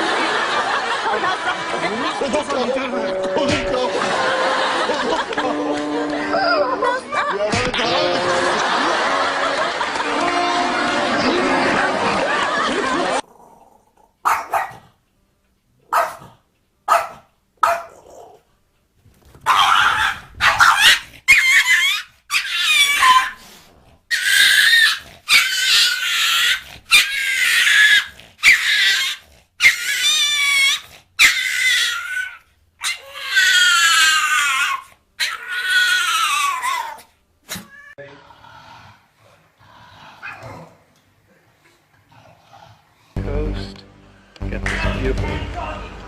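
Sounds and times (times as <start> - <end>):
dog yipping: 14.2 - 14.8, 15.9 - 16.2, 16.9 - 18.0, 19.4 - 23.4, 24.1 - 38.0
dog whining: 19.5 - 23.4, 24.1 - 38.0.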